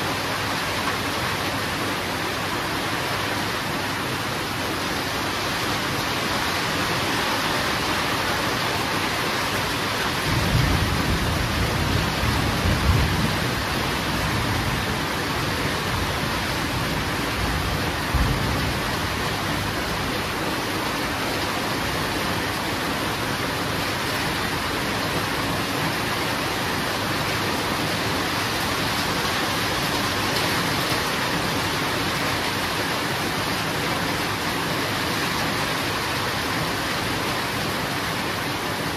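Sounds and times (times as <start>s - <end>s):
heavy rain hissing: 0.0s - 38.9s
thunder rumbling: 10.3s - 15.0s.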